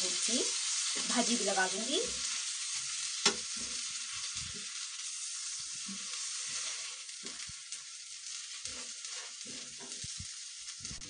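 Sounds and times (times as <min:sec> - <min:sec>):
butter sizzling on a hot pan: 0:00.0 - 0:11.0.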